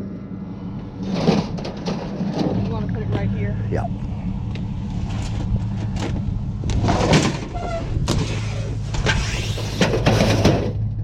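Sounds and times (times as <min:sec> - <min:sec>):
scrap metal knocking and scraping: 0:01.0 - 0:03.5, 0:05.0 - 0:10.9.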